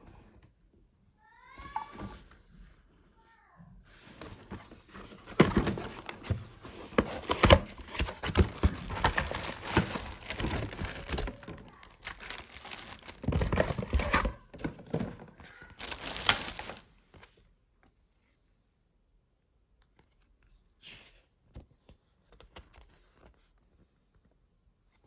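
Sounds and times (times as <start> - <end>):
plastic crinkling: 7.0 - 14.4, 15.5 - 17.0.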